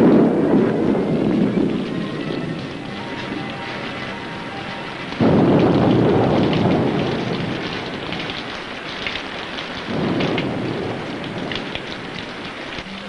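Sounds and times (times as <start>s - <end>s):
heavy rain: 0.0s - 13.0s
thunder rumbling: 0.0s - 13.0s.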